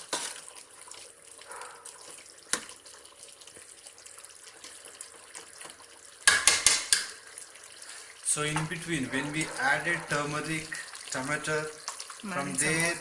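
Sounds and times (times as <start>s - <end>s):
spoon stirring curry in pot: 0.0s - 7.5s
spoon knocking on pot: 6.2s - 7.2s.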